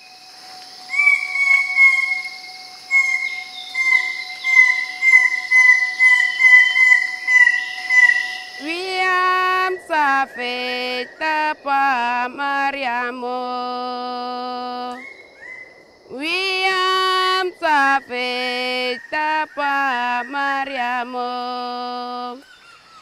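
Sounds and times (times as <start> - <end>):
bird calling repeated notes: 0.0 - 12.4
forest insects humming: 0.0 - 23.0
person chanting: 3.7 - 15.0, 16.1 - 22.4.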